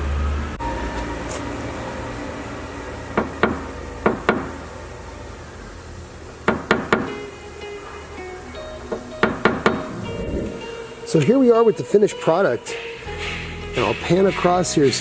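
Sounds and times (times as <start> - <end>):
hammer tapping metal tool: 3.1 - 4.7, 6.4 - 7.3, 8.9 - 9.9.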